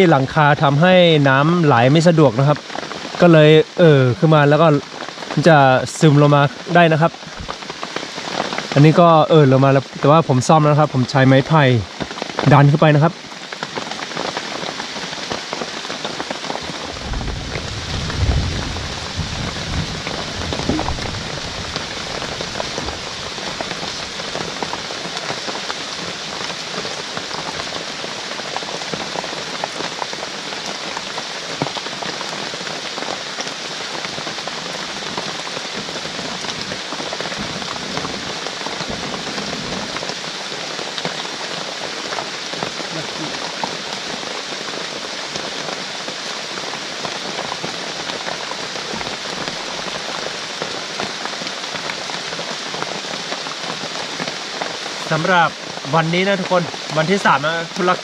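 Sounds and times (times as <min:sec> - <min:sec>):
heavy rain pouring: 0:00.0 - 0:58.0
low thumps: 0:16.6 - 0:24.0, 0:37.4 - 0:40.1.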